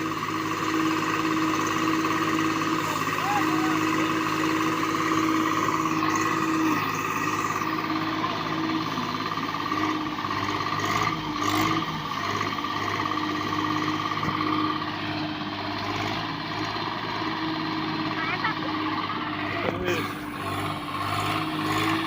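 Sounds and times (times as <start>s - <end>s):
tractor diesel engine idling: 0.0s - 22.0s.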